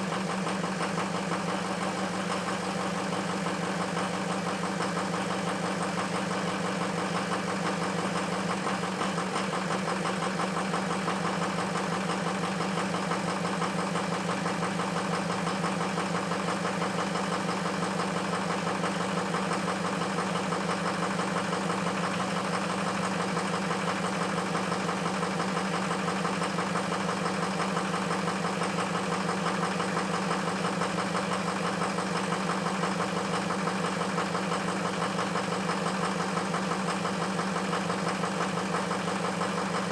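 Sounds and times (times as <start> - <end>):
engine idling roughly: 0.0 - 39.9.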